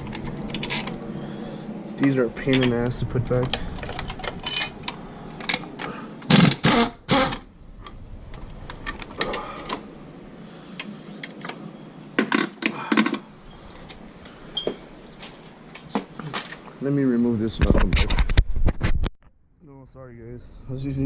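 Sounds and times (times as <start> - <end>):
hand tools clinking on metal: 2.4 - 5.7, 8.8 - 9.8.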